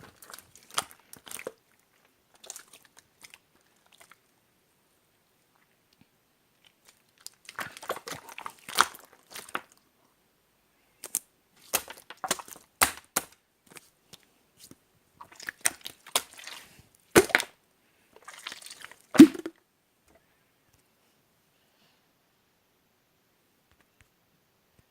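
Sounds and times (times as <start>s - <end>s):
slime squished by hand: 17.2s - 17.5s, 18.3s - 19.5s.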